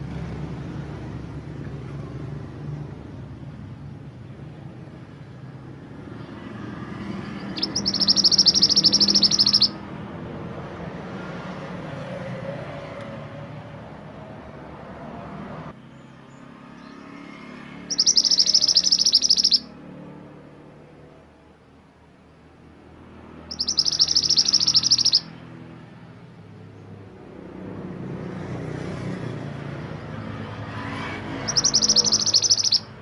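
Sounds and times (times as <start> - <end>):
songbird high-pitched trills: 7.4 - 9.8, 17.9 - 19.8, 23.5 - 25.4, 31.4 - 33.0.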